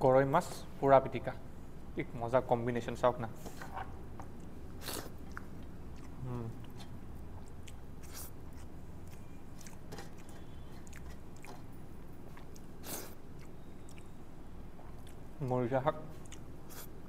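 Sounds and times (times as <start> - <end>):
person chewing: 4.1 - 17.0.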